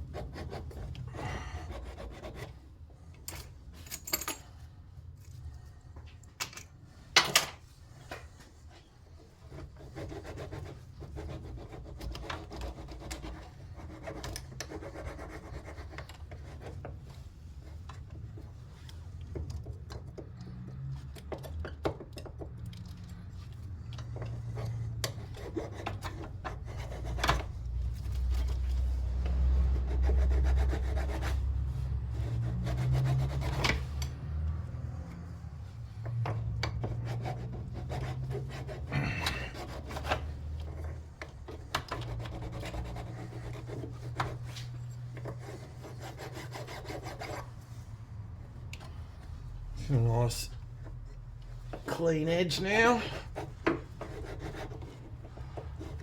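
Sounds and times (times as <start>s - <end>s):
hand file rasping on metal: 0.0s - 2.6s, 29.2s - 34.2s, 36.4s - 40.9s, 42.0s - 47.6s, 52.8s - 56.0s.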